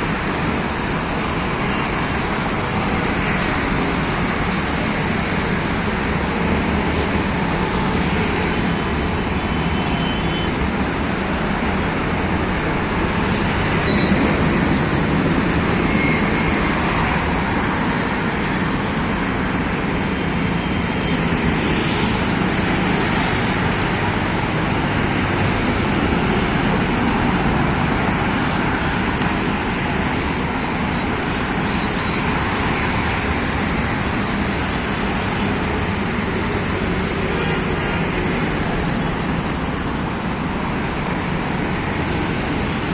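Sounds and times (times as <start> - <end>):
highway traffic passing: 0.0 - 42.9
short high beeps: 13.9 - 14.2.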